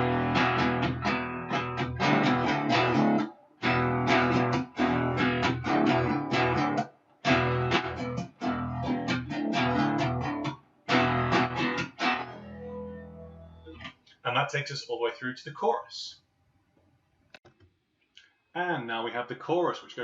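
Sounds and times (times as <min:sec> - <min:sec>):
guitar chord strumming: 0:00.0 - 0:13.9
guitar riff on low strings: 0:00.0 - 0:13.9.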